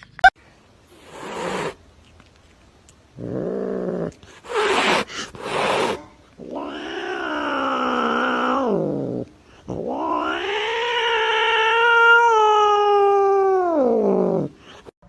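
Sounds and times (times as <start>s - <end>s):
cat yowling: 5.8s - 9.1s, 9.8s - 14.5s.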